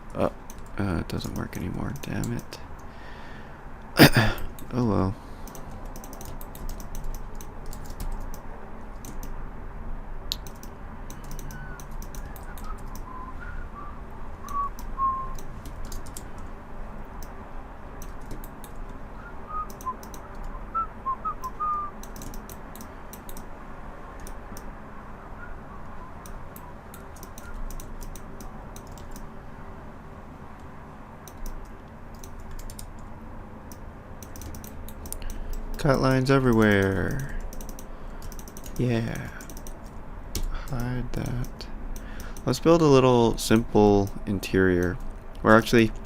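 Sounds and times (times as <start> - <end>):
keyboard and mouse clicking: 0.1 - 2.9, 5.4 - 9.4, 10.3 - 13.1, 14.5 - 16.5, 18.0 - 19.0, 19.7 - 20.5, 22.0 - 23.5, 24.2 - 24.7, 26.2 - 29.3, 30.6 - 33.1, 33.7 - 42.5
soft whistled notes: 11.4 - 15.4, 19.2 - 22.0, 25.1 - 27.7.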